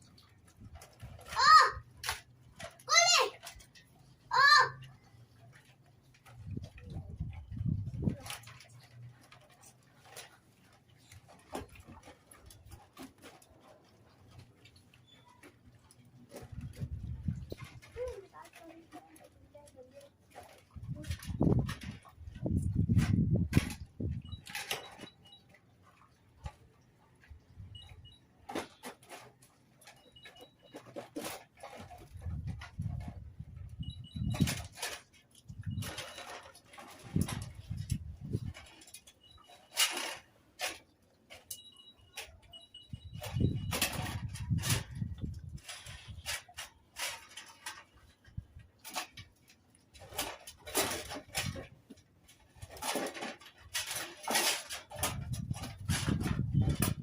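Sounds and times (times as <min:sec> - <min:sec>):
dogs scuffing and clicking: 0:00.0 - 0:57.0
faint high squeaks: 0:15.0 - 0:15.8, 0:27.7 - 0:32.2.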